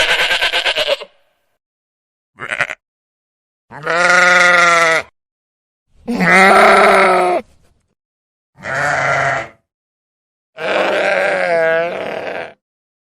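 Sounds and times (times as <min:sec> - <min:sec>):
sheep bleating: 0:00.0 - 0:01.2, 0:02.4 - 0:02.8, 0:03.7 - 0:05.1, 0:06.1 - 0:07.4, 0:08.6 - 0:09.6, 0:10.6 - 0:12.6.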